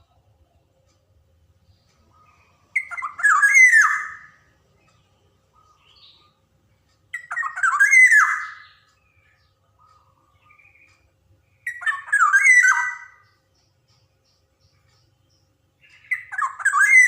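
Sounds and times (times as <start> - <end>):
bird giving harsh calls: 2.3 - 4.4, 7.2 - 8.8, 11.6 - 13.3.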